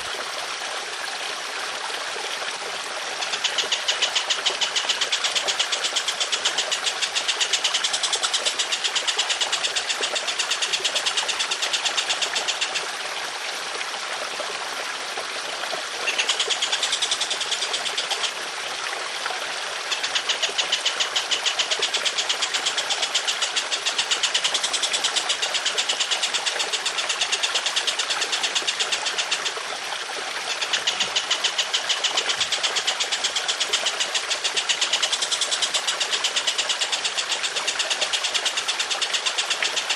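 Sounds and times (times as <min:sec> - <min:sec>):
trickling water: 0:00.0 - 0:39.9
songbird harsh rapid bursts: 0:03.2 - 0:12.8, 0:16.0 - 0:18.3, 0:30.4 - 0:39.9.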